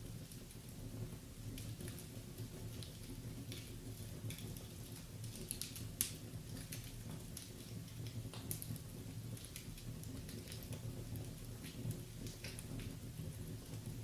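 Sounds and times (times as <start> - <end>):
fire rumbling: 0.0 - 14.0
wood fire crackling and popping: 0.0 - 14.0.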